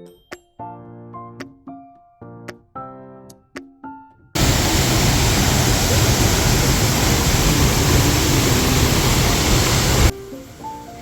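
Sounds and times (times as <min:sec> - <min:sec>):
waterfall rushing: 0:04.4 - 0:10.1.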